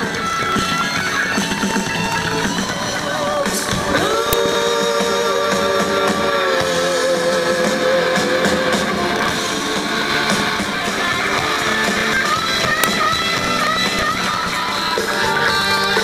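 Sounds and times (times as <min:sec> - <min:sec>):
guitar music with held notes: 0:00.0 - 0:16.0.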